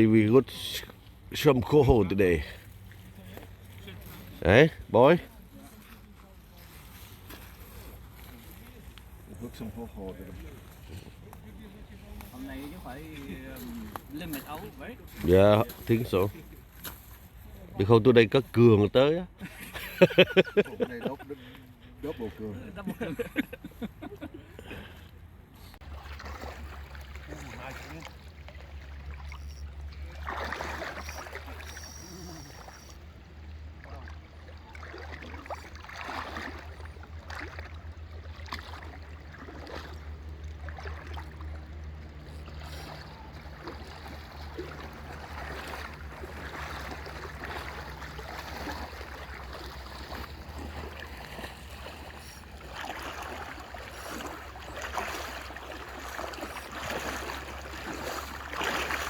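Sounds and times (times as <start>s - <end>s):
water splashes: 0.0s - 17.2s, 25.8s - 59.0s
river water rushing: 34.0s - 59.0s.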